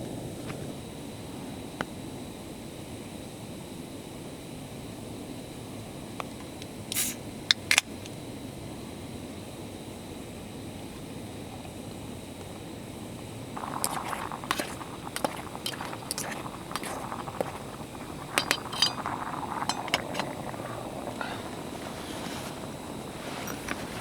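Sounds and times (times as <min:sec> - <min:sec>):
steady low hiss: 0:13.5 - 0:24.0
sharp clinks and clicks: 0:13.6 - 0:24.0.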